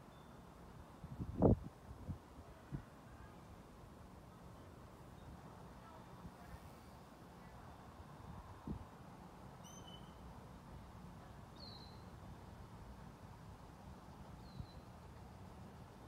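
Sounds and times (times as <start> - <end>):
faint background noise: 0.0 - 16.0
high bird chirps: 9.6 - 10.2.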